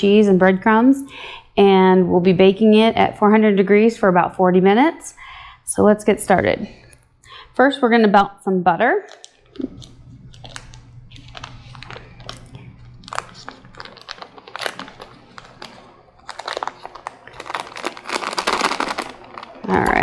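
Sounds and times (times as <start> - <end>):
paper wrapper crinkling: 9.1 - 20.0.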